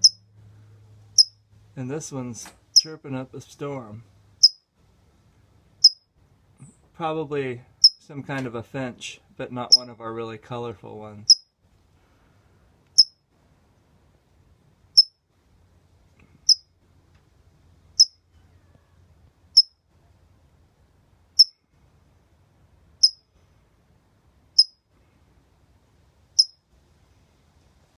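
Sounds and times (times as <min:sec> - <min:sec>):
small bird chirping: 0:00.0 - 0:00.3, 0:01.2 - 0:01.4, 0:02.7 - 0:02.9, 0:04.4 - 0:04.6, 0:05.8 - 0:06.1, 0:07.8 - 0:08.0, 0:09.7 - 0:09.9, 0:11.3 - 0:11.5, 0:13.0 - 0:13.2, 0:15.0 - 0:15.2, 0:16.4 - 0:16.7, 0:18.0 - 0:18.3, 0:19.6 - 0:19.8, 0:21.4 - 0:21.6, 0:23.0 - 0:23.3, 0:24.6 - 0:24.8, 0:26.4 - 0:26.6.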